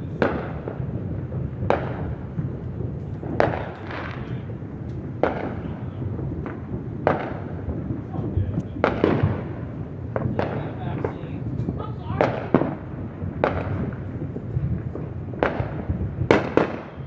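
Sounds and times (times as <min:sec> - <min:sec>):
steady low rumble: 0:00.0 - 0:16.3
fireworks bangs: 0:00.0 - 0:17.0.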